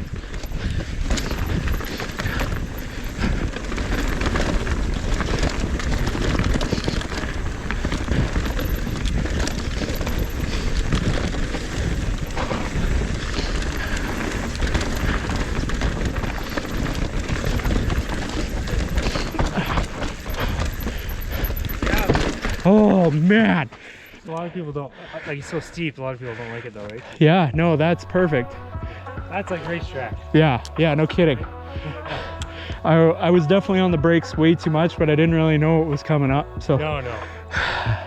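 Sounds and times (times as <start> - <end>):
wind noise on microphone: 0.0 - 22.7
bike rattling and knocking: 0.0 - 24.1, 27.5 - 38.0
tyres rolling and skidding on dirt: 0.0 - 24.2, 27.3 - 38.0.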